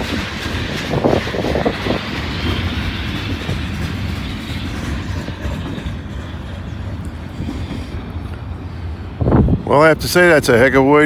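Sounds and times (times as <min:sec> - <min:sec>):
wheel clatter: 0:00.0 - 0:07.8
freight train rumbling past: 0:00.0 - 0:11.0.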